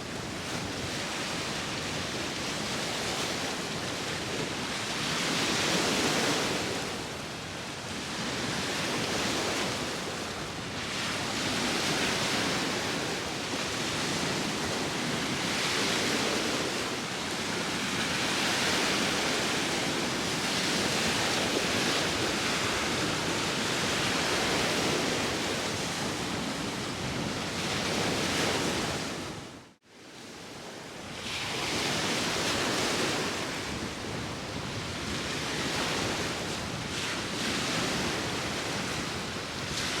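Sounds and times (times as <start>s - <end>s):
wind: 0.0s - 40.0s
sea waves washing in: 30.5s - 40.0s.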